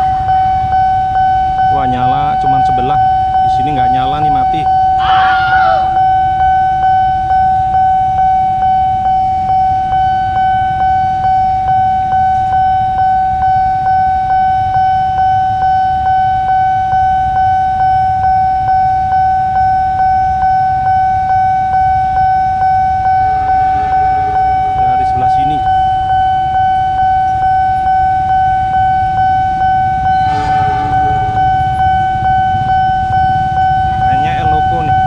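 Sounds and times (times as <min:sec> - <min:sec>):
level crossing bell ringing: 0:00.0 - 0:08.2, 0:15.4 - 0:35.0
idling traffic rumble: 0:00.0 - 0:35.0.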